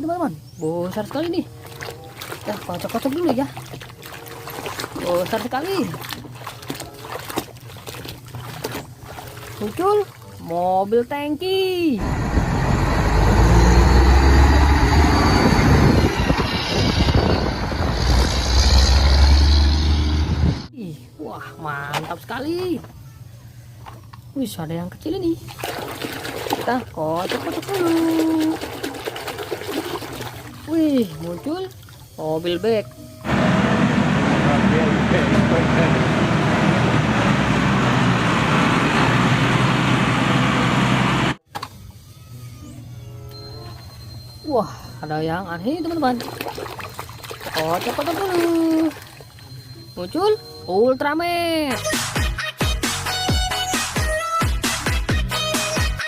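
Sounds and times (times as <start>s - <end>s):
large vehicle engine rumbling: 12.0s - 20.7s, 33.2s - 41.4s
loud steady rushing noise: 33.3s - 41.4s.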